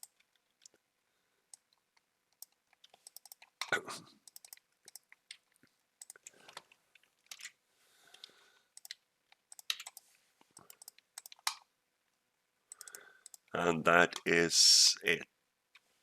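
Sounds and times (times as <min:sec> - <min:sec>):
keyboard and mouse clicks: 0:00.0 - 0:00.8, 0:01.5 - 0:11.7, 0:12.7 - 0:13.5.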